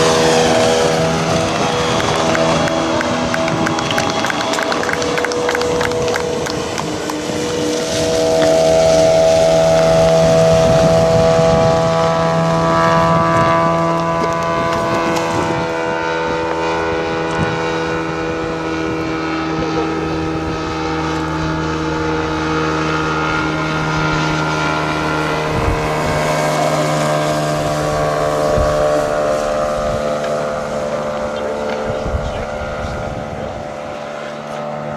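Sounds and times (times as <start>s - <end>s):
model airplane engine droning: 0.0s - 34.9s.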